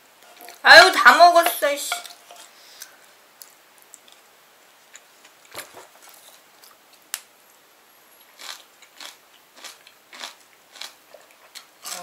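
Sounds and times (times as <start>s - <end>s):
soft chewing: 2.3s - 7.1s, 8.2s - 12.0s.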